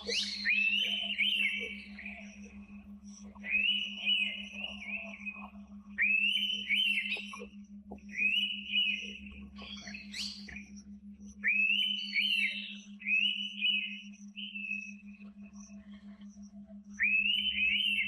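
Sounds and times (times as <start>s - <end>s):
bird whistled calls: 0.0s - 2.5s, 3.4s - 7.4s, 8.1s - 10.7s, 11.4s - 15.1s, 17.0s - 18.0s
steady low hum: 0.0s - 18.0s.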